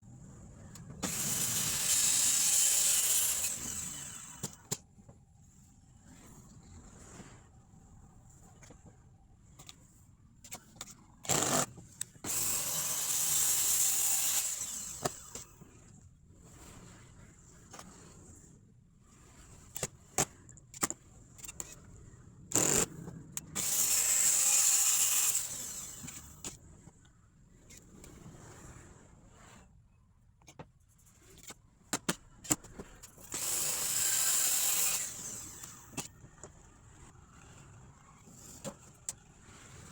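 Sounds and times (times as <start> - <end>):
power tool working wood: 1.0 - 4.7, 12.3 - 15.4, 23.6 - 26.4, 33.3 - 36.0.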